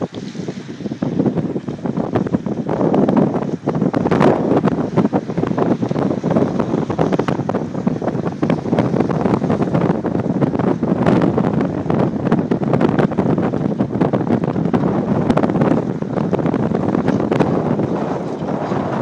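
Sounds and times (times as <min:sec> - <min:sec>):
crackling rumble: 0:00.0 - 0:19.0
wind buffeting microphone: 0:00.0 - 0:19.0.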